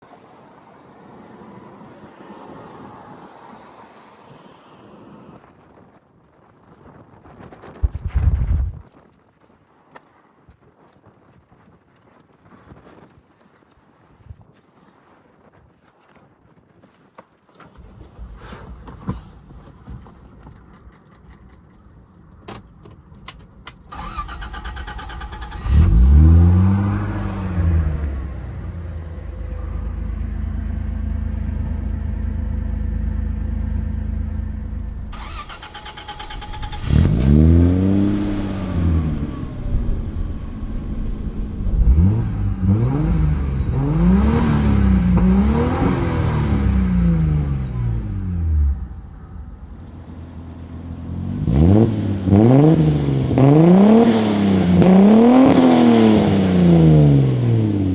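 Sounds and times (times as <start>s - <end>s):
car engine starting and idling: 17.6s - 57.9s
engine revving: 23.9s - 49.6s, 51.2s - 57.9s.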